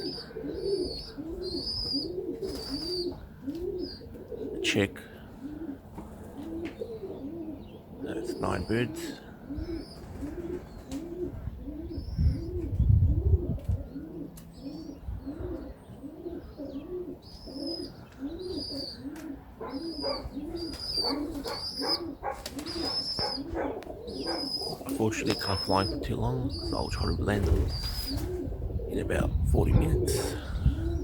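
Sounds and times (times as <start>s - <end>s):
pigeons cooing: 0.0s - 31.0s
small bird chirping: 14.5s - 19.0s, 19.6s - 28.2s.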